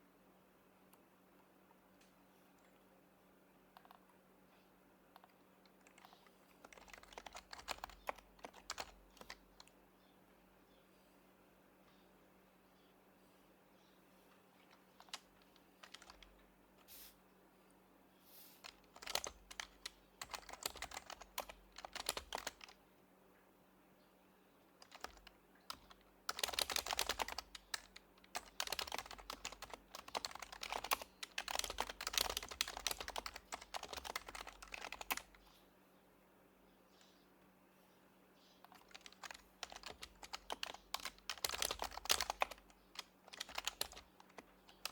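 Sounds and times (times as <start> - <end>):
keyboard keystrokes: 5.2 - 9.7, 14.6 - 16.4, 18.6 - 22.8, 24.8 - 35.4, 38.7 - 44.9.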